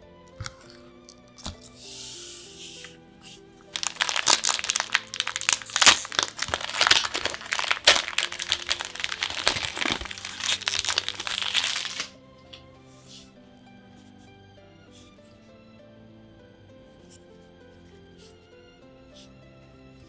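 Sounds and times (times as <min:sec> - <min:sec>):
background music: 0:00.0 - 0:20.0
plastic packaging crinkling: 0:00.4 - 0:01.6, 0:03.6 - 0:12.1.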